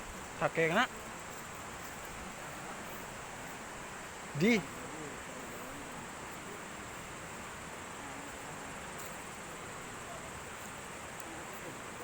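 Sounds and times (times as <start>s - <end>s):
faint distant voices: 0.0s - 12.0s
outdoor background hiss: 0.0s - 12.0s.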